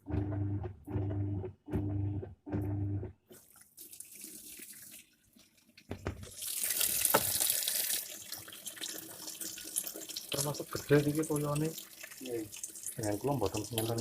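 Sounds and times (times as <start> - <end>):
low hum: 0.0 - 3.2
water running from a tap: 3.4 - 14.0.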